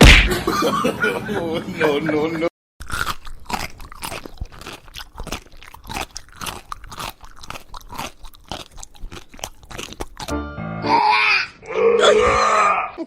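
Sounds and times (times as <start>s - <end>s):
pet crunchy chewing: 2.8s - 10.4s.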